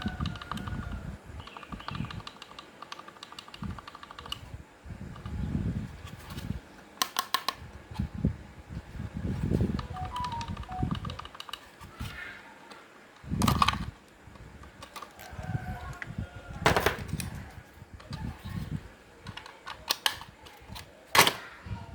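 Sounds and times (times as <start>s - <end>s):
small hard parts clicking: 1.4s - 4.5s.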